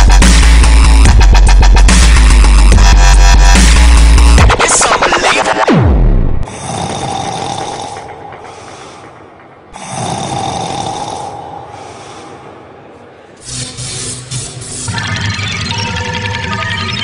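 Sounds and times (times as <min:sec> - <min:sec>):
noisy snores: 0:06.5 - 0:08.2, 0:09.8 - 0:11.8.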